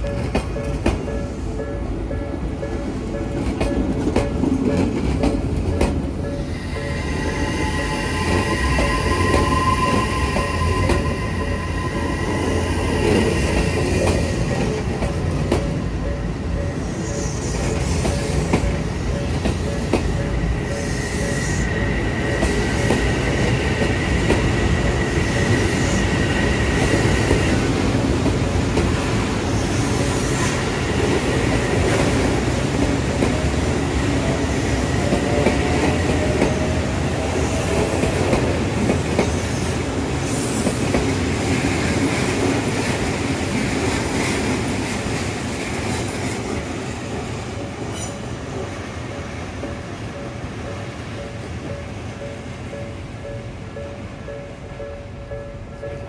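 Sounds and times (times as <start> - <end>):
crossing warning bell ringing: 0.0 - 38.9, 46.5 - 56.0
train wheels clattering on rails: 0.0 - 56.0
thin high wheel squeal: 6.4 - 14.4.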